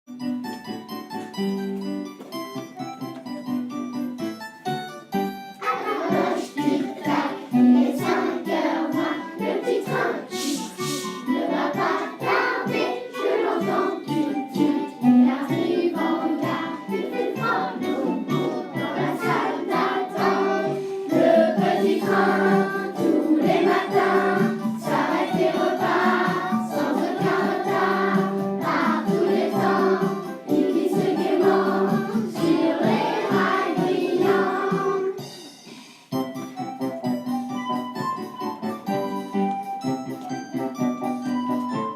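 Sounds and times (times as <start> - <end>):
instrumental accompaniment: 0.1 - 41.9
children singing in chorus: 5.6 - 35.2.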